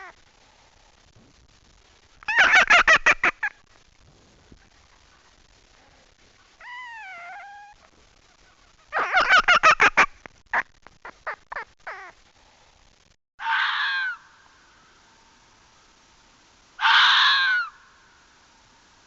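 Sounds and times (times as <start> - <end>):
crow cawing: 13.4 - 15.0, 16.8 - 18.2.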